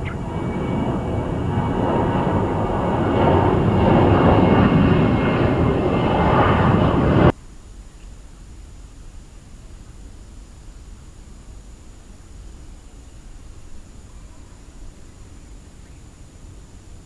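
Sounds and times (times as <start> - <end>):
jet engines roaring with whine: 0.0 - 7.3.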